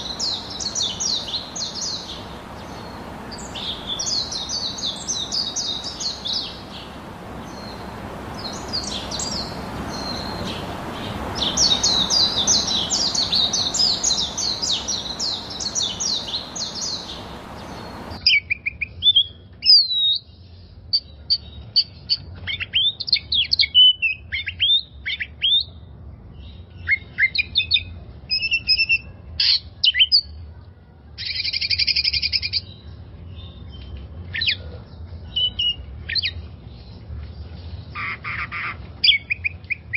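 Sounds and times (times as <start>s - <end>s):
background hiss: 0.0s - 18.2s
buzzy bird trill: 0.0s - 18.2s
small songbirds chirping: 0.0s - 18.2s.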